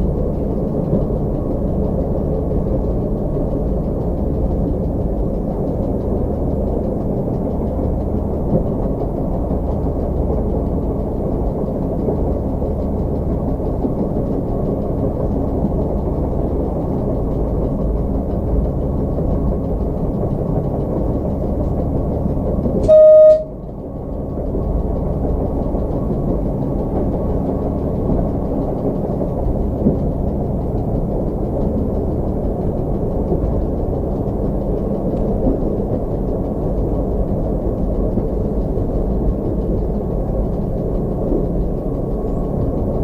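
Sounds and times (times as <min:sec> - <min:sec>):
train rumbling on rails: 0:00.0 - 0:43.0
train horn blast: 0:22.8 - 0:23.6.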